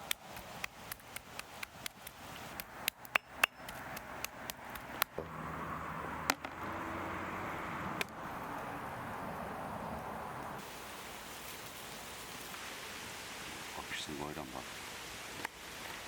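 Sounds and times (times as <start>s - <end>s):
sizzling hiss: 10.5s - 16.0s.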